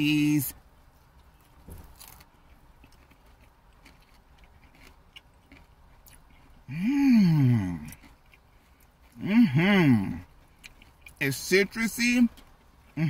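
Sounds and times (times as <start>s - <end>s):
crunchy chewing: 0.9s - 11.5s
person humming: 6.7s - 7.9s, 9.2s - 10.2s.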